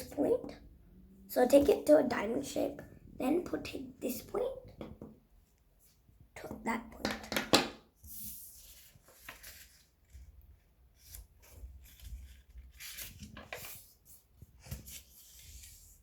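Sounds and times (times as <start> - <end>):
paper being folded and creased: 8.0 - 16.0.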